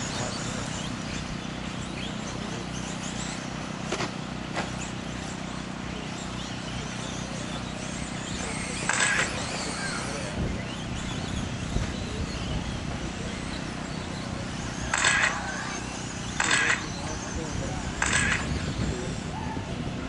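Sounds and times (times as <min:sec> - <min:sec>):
rc car motor whines: 0:00.0 - 0:19.6
steady low hum: 0:00.0 - 0:20.0
rush of noise: 0:14.4 - 0:20.0.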